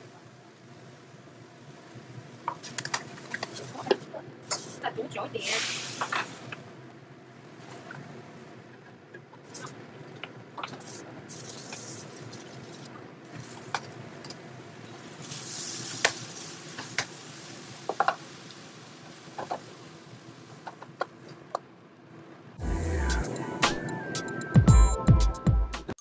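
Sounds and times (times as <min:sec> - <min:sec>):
prawns sizzling in a frying pan: 0:05.4 - 0:06.4, 0:14.7 - 0:20.6.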